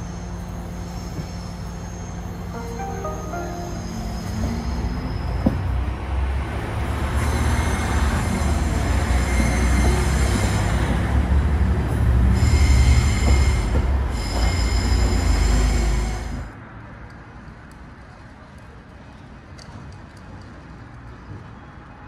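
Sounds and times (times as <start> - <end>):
diesel train engine rumble: 0.0 - 21.5
high-pitched wheel squeal: 0.1 - 5.8, 12.3 - 16.4.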